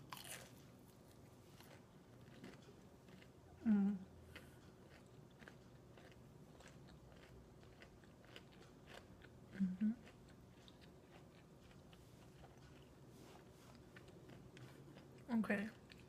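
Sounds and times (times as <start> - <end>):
person humming: 3.6 - 4.1, 9.6 - 10.0
wet chewing clicks and smacks: 4.3 - 13.0.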